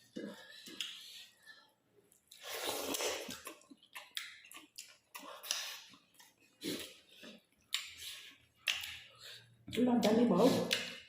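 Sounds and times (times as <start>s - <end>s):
mouth clicks and smacks: 0.1s - 1.4s, 2.1s - 11.0s.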